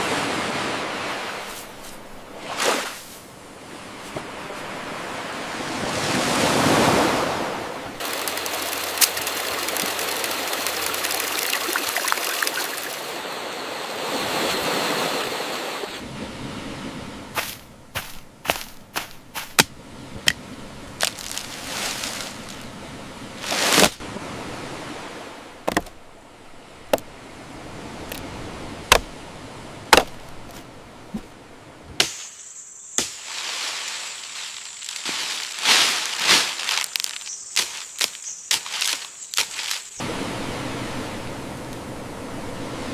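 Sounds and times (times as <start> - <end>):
sharp irregular knocks and cracks: 25.6 - 25.9, 29.9 - 30.2.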